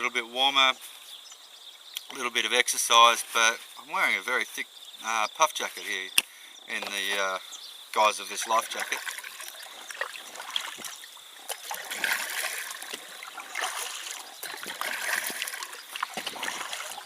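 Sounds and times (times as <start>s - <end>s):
water trickling: 6.9s - 17.0s
paddle splashes: 8.3s - 17.0s.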